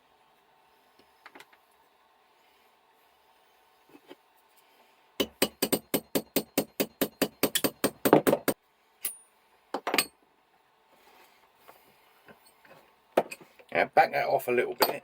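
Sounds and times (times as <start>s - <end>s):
hammer striking metal punch: 5.2s - 9.2s.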